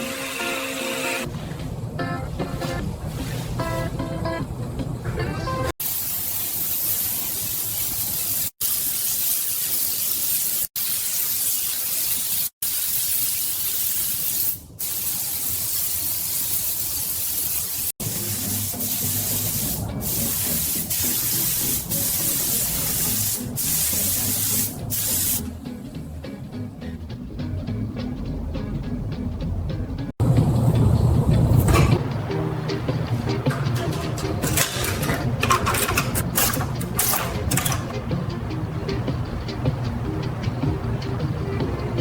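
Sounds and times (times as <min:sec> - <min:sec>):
spray gun hissing: 0:05.8 - 0:25.5.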